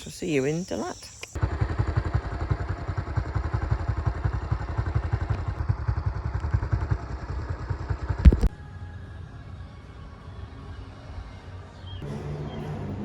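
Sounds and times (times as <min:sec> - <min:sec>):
motorcycle engine idling: 0:01.4 - 0:08.4.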